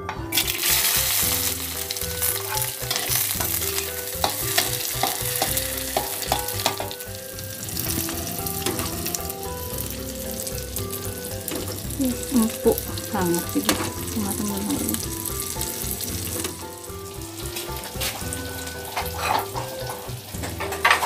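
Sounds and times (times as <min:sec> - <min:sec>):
vegetables sizzling in hot oil: 0:00.3 - 0:21.0
spatula scraping a wok: 0:00.7 - 0:06.9, 0:17.4 - 0:21.0
spatula clicking against wok: 0:04.2 - 0:07.0.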